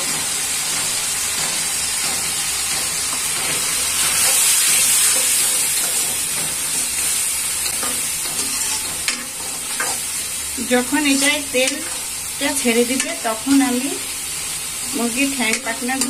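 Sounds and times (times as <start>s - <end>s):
paste sizzling in hot oil: 0.0s - 16.0s
metal spoon stirring: 7.7s - 10.0s.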